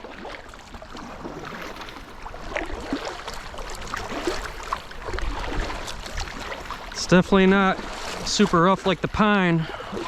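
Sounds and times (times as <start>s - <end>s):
steady wash of water: 0.0s - 10.0s
water splashing: 0.0s - 10.0s.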